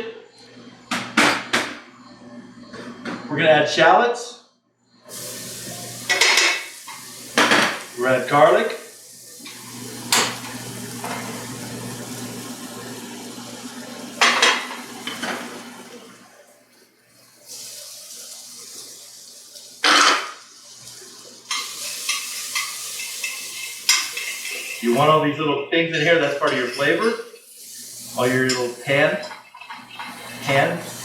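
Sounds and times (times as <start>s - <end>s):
food sizzling in a pan: 5.1s - 25.4s, 26.2s - 31.0s
metal utensil clanking on a pan: 21.5s - 24.9s.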